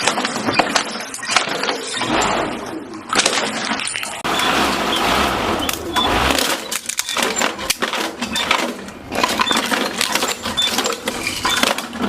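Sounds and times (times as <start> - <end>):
plastic pieces clattering: 3.2 - 12.0.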